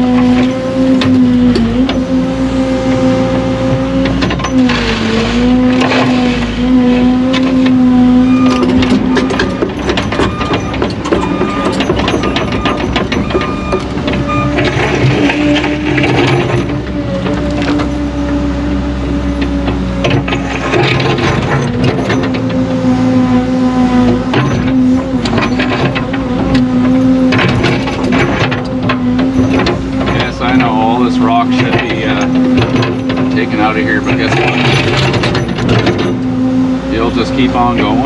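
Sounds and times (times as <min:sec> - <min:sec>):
heavy machine engine droning: 0:00.0 - 0:38.0
rock and gravel scraping: 0:03.8 - 0:18.0
short regular beeps: 0:08.2 - 0:14.6.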